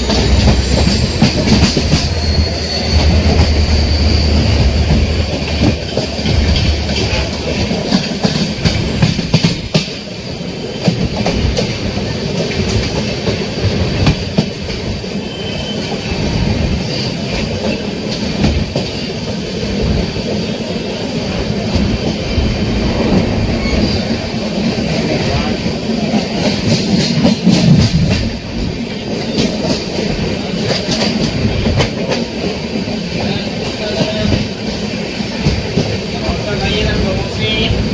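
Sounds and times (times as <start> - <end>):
high wheel squeal: 0.0 - 7.5, 14.8 - 18.0, 23.4 - 24.4
train rumbling on track: 0.0 - 37.9
wheels clattering over rails: 0.0 - 37.9.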